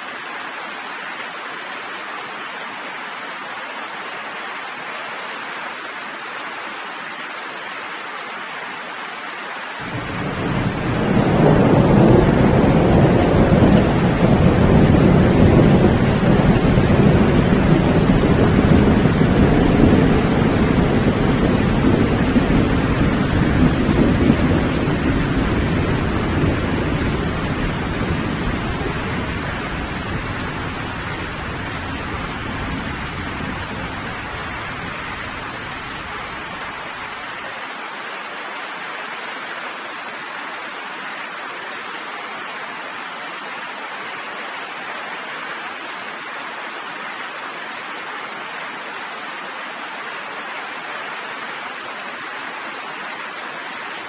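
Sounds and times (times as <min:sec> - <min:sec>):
steady rain falling: 0:00.0 - 0:54.0
low rumble of thunder: 0:09.9 - 0:36.6.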